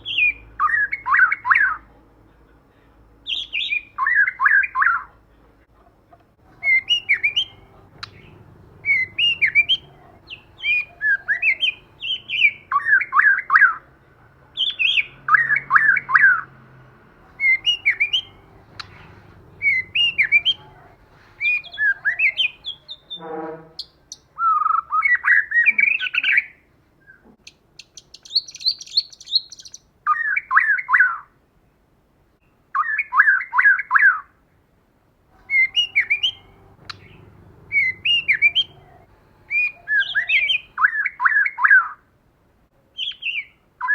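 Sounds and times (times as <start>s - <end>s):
bird chattering calls: 6.5s - 12.9s, 17.2s - 23.2s, 35.4s - 40.8s.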